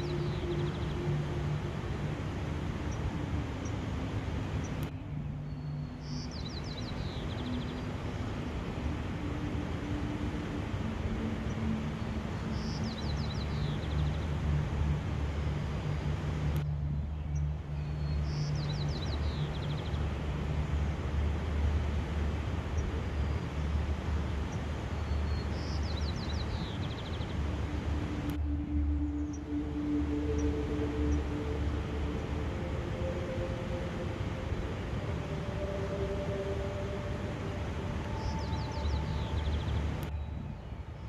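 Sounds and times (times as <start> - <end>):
low hum: 0.0 - 41.0
outdoor rushing background noise: 0.0 - 41.0.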